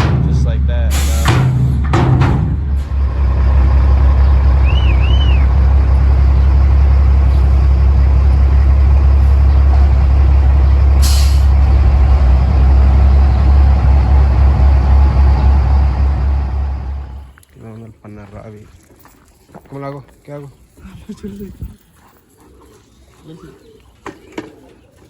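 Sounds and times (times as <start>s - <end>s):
diesel truck engine running: 0.0s - 17.3s
air hiss: 0.9s - 1.6s.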